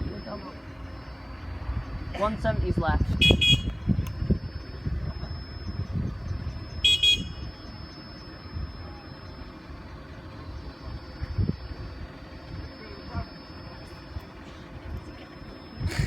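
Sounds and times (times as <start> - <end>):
road traffic rumbling: 0.0 - 16.0
short high-pitched horn toot: 3.2 - 3.8.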